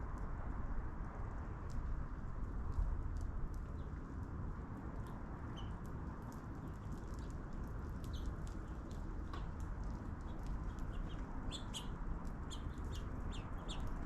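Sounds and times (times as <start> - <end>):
low background rumble: 0.1 - 14.0
small ticks: 2.7 - 14.0
faint bird chirps: 10.7 - 14.0.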